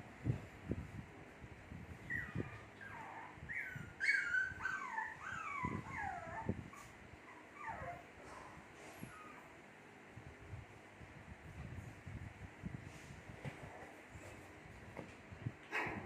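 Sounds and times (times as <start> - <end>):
puppies whimpering: 2.1 - 8.4.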